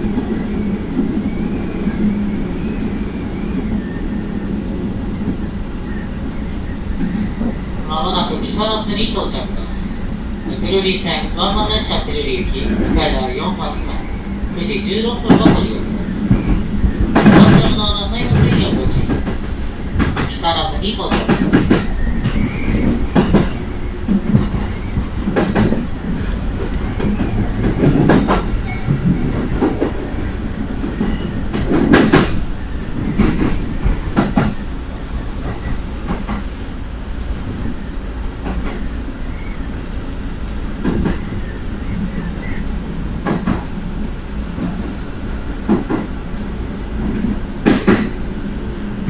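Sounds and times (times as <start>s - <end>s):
train rumbling: 0.0s - 49.0s
wheels clacking over rails: 15.0s - 36.7s, 40.7s - 49.0s.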